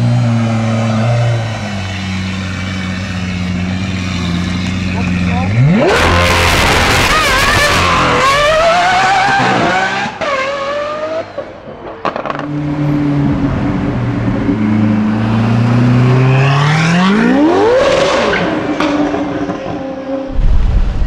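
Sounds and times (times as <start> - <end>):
car engine accelerating hard: 0.0 - 11.4.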